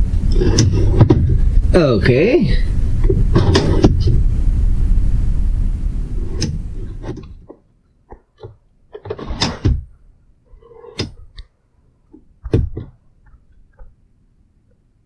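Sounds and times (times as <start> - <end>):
knocks and clicks of handling: 6.4 - 9.9, 10.9 - 11.5, 12.1 - 14.0.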